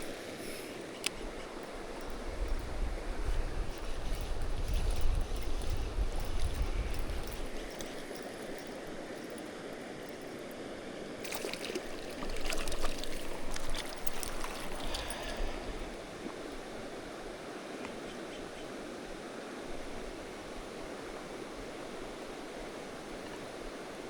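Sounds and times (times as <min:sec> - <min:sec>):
wind rumbling on microphone: 0:01.0 - 0:07.8
stream running over rocks: 0:07.2 - 0:17.8
sharp crackling splashes: 0:11.2 - 0:15.2.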